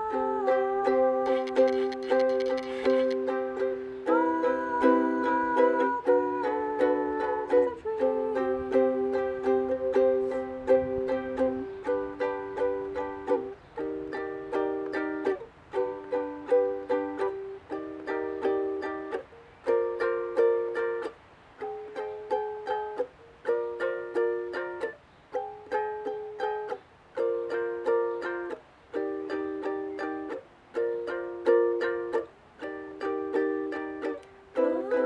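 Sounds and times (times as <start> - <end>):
plucked string instrument strumming: 0.0 - 35.0.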